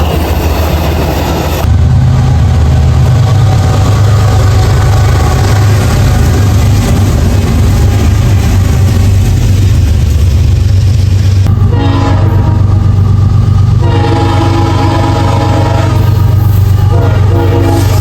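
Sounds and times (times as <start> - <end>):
diesel locomotive droning: 0.0 - 18.0
multi-tone air horn: 11.7 - 12.6, 13.8 - 16.1, 16.8 - 18.0.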